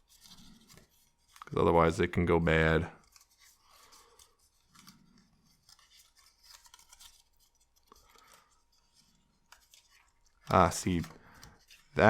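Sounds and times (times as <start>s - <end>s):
thin card rustling and creasing: 0.0s - 2.0s, 2.6s - 12.0s.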